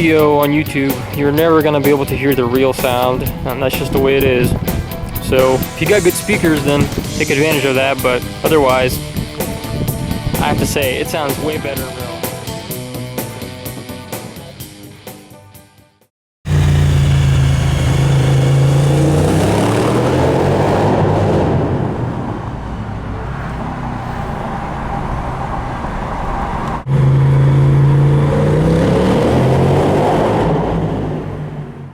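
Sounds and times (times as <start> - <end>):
motorcycle engine running hard: 16.5 - 20.6.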